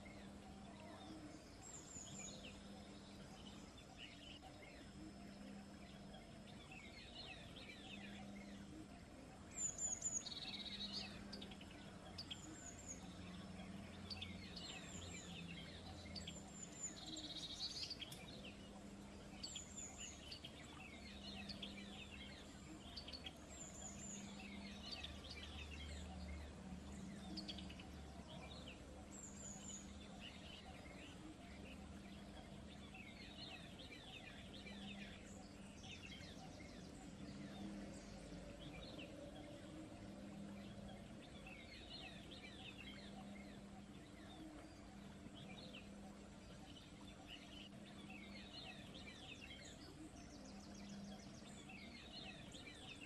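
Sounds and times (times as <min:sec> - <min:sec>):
faint steady background noise: 0:00.0 - 0:53.0
wild birds chirping: 0:00.0 - 0:53.0.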